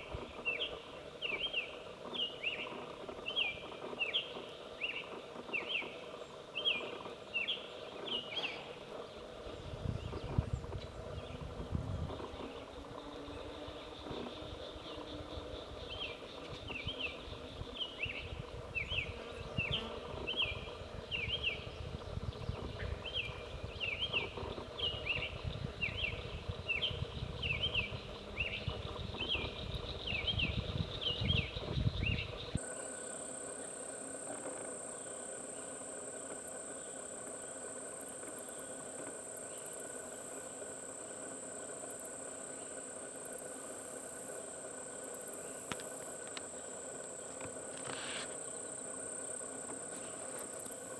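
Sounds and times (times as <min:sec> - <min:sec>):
bird singing: 0:00.0 - 0:34.2
insect drone: 0:00.0 - 0:50.9.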